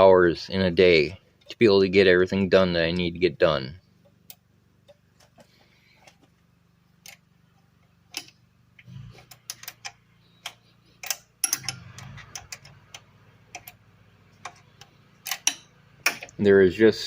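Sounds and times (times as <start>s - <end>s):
faint low hum: 0.0s - 17.0s
hand tools clinking on metal: 9.5s - 12.9s.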